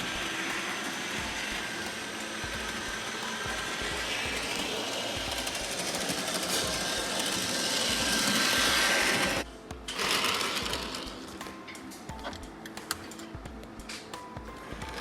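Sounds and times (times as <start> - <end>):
toy train motor whirring: 0.0 - 13.3, 14.6 - 15.0.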